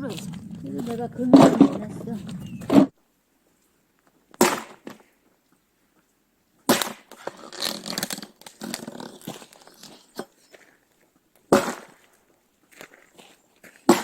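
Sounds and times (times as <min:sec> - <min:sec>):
wood cracking and rustling: 0:00.0 - 0:02.9.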